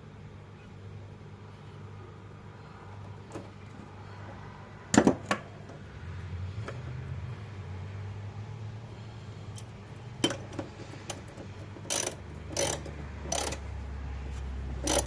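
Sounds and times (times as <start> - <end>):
steady low hum: 0.0 - 15.0
hand ratchet clicking: 11.1 - 13.7, 14.7 - 15.0.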